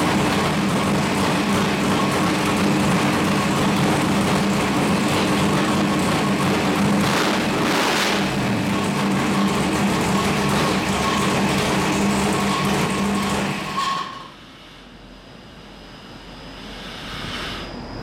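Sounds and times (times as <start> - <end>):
racing engine running steadily: 0.0 - 13.7.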